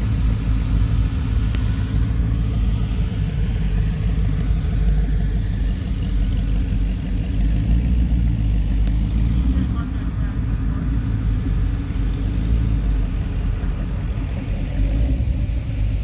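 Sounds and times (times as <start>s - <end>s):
car engine low rumble: 0.0s - 16.0s.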